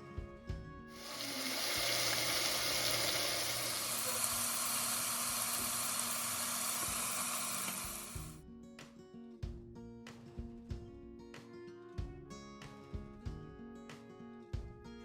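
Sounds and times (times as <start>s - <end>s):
food sizzling in hot oil: 1.0s - 8.4s.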